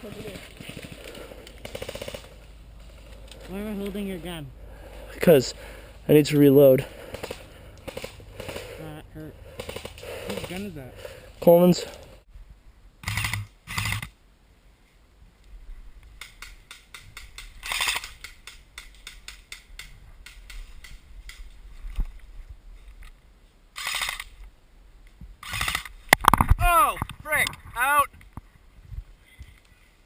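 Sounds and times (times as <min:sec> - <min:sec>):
rapid mechanical clicking: 0:25.4 - 0:25.9.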